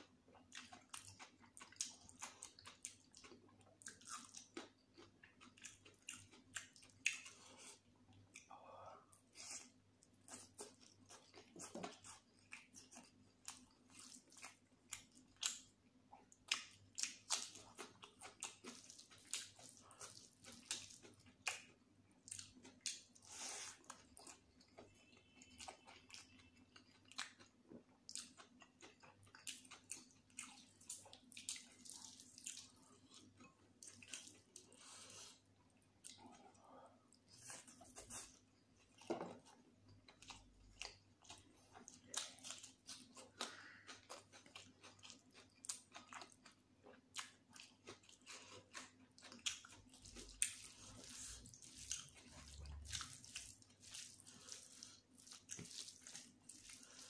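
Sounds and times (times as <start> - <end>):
wet chewing mouth sounds: 0.3 - 8.5, 9.4 - 57.0
food crunching: 37.3 - 57.0.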